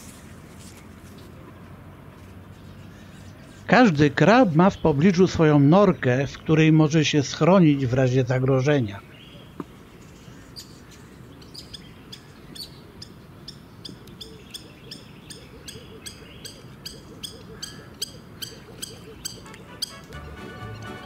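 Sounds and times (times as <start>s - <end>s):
bird calling high falling notes: 15.7s - 21.0s.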